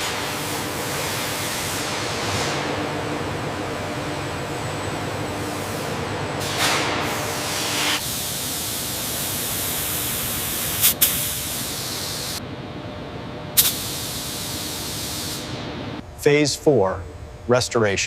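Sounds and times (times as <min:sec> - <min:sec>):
spraying hiss: 0:08.0 - 0:12.4, 0:13.6 - 0:15.5.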